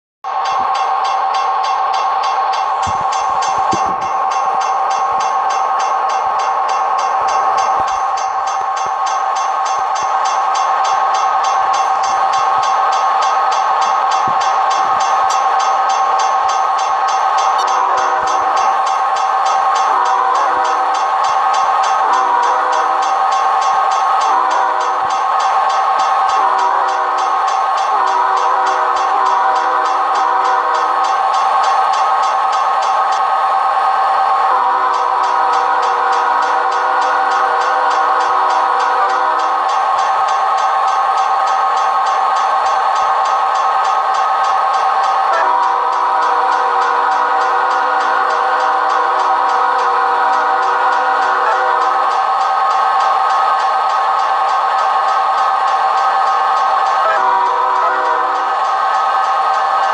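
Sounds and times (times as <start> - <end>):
locomotive air horn chord: 17.5 - 18.8, 19.8 - 20.9, 22.0 - 23.0, 26.4 - 27.3, 27.9 - 31.0, 45.3 - 52.0, 57.0 - 58.5.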